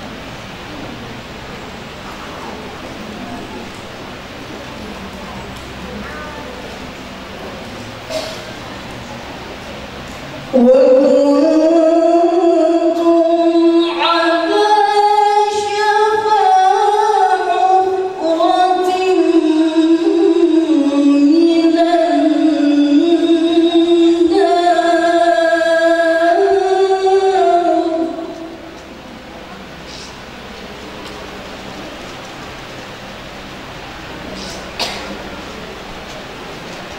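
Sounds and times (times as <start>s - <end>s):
woman chanting melodic recitation: 10.4s - 28.9s.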